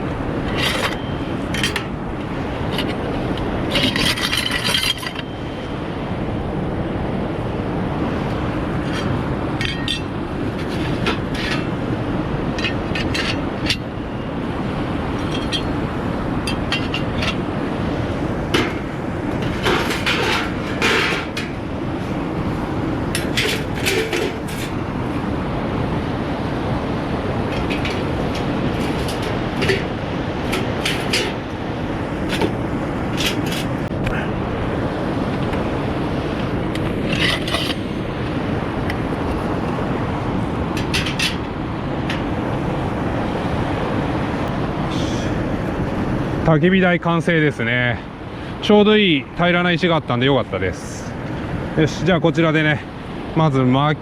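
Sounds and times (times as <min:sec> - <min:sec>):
metal parts clinking and scraping: 0:00.4 - 0:01.9, 0:03.7 - 0:05.3, 0:08.8 - 0:11.7, 0:12.6 - 0:13.9, 0:15.2 - 0:15.8, 0:16.5 - 0:17.4, 0:19.4 - 0:21.6, 0:23.2 - 0:24.8, 0:27.5 - 0:29.9, 0:37.0 - 0:38.0
fast-flowing river rushing: 0:05.0 - 0:46.5.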